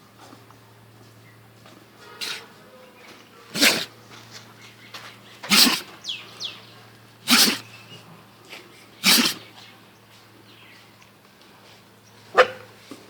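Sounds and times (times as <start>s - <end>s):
dog sneezing: 2.1s - 2.5s, 3.5s - 3.9s, 5.4s - 6.0s, 7.2s - 7.7s, 9.0s - 9.5s.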